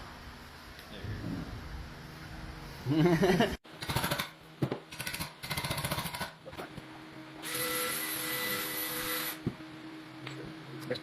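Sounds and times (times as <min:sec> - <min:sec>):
power tool whine: 0:07.4 - 0:09.4.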